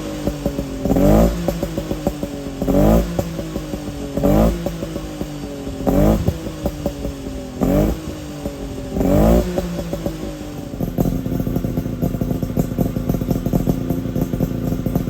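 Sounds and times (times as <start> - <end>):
two-stroke engine idling and revving: 0.0 - 15.0.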